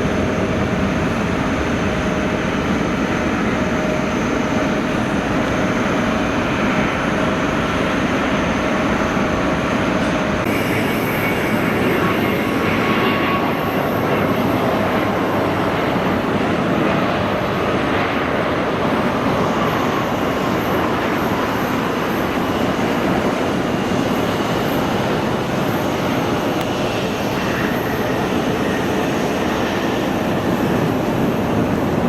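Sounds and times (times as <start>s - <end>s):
jet engines roaring: 0.0s - 32.0s
faint high whine: 2.3s - 16.0s.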